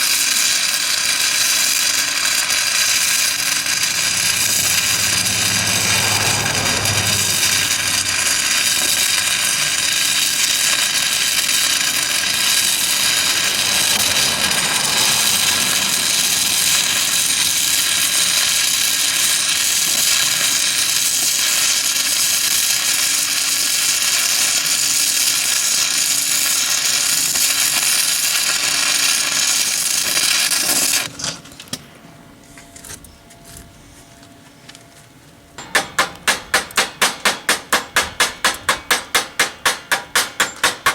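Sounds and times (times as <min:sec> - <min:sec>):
welding arc hissing: 0:00.0 - 0:31.1
low hum: 0:02.2 - 0:19.2.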